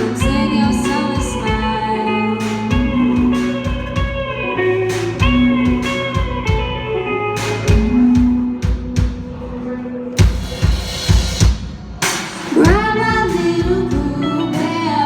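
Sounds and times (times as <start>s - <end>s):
electric guitar notes: 0.0s - 10.2s
drum kit beat: 0.0s - 15.0s.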